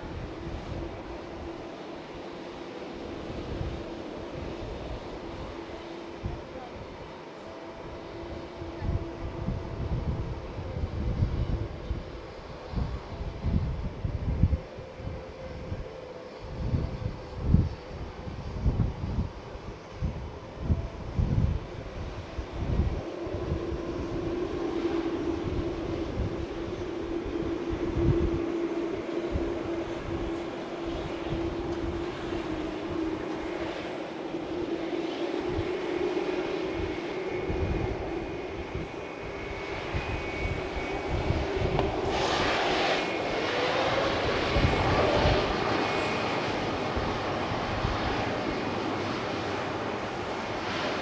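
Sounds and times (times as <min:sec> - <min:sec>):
jet engines at takeoff power: 0:00.0 - 0:51.0
wind thumping on microphone: 0:36.7 - 0:46.2.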